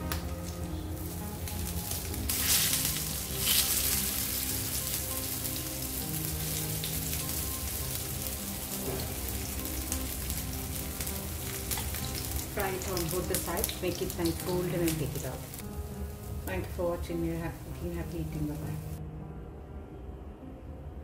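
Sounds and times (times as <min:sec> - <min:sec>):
patty turned over in oil: 0:00.1 - 0:15.6
patties sizzling in oil: 0:00.1 - 0:19.0.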